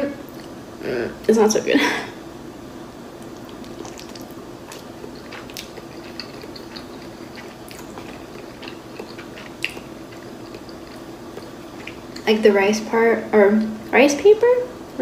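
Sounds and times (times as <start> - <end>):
close-up chewing: 3.2 - 12.4.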